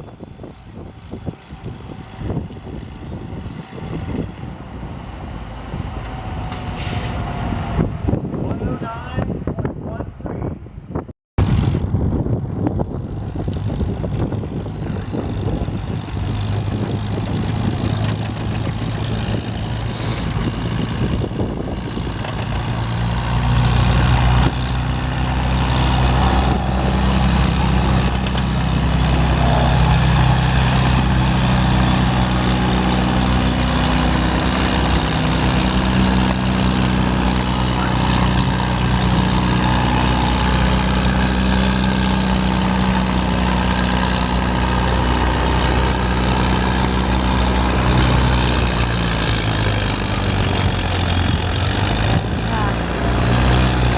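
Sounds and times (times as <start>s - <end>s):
tractor engine running: 11.4s - 53.9s.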